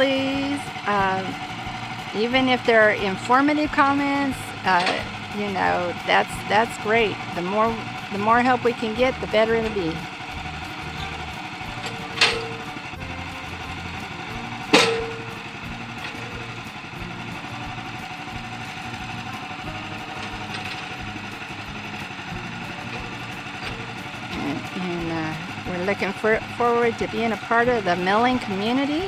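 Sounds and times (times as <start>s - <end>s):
sawmill engine running: 0.0s - 29.0s
sharp ringing knocks: 14.7s - 15.4s.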